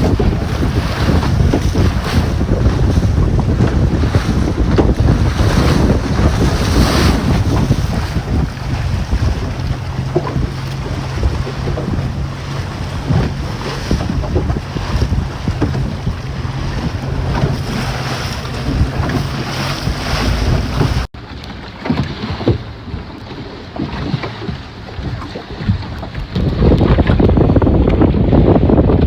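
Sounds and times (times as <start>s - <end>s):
wind buffeting microphone: 0.0s - 21.1s, 21.9s - 29.0s
boat motor humming: 0.0s - 29.0s
water rushing past hull: 0.0s - 29.0s.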